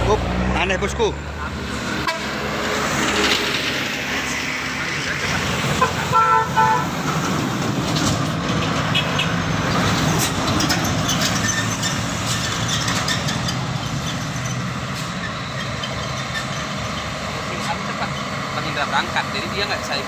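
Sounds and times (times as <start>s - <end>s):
diesel truck engine under load: 0.0s - 20.0s
truck horn toot: 2.0s - 2.5s, 5.8s - 7.0s.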